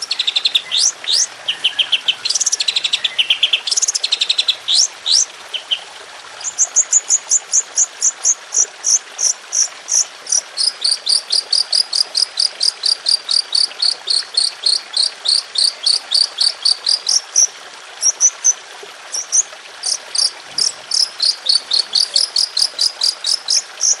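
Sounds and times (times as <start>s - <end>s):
songbird rapid high chirps: 0.0s - 5.8s, 19.2s - 24.0s.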